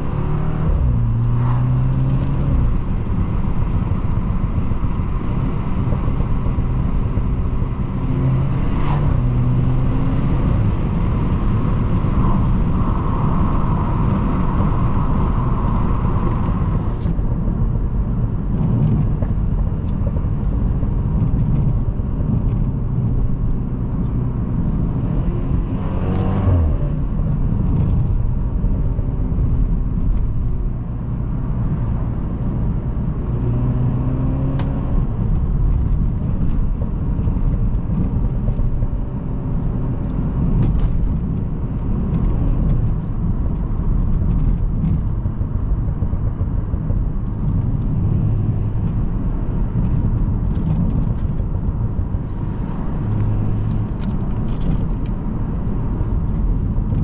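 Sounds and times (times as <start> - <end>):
car engine drone: 0.0 - 57.0
road noise: 0.0 - 57.0.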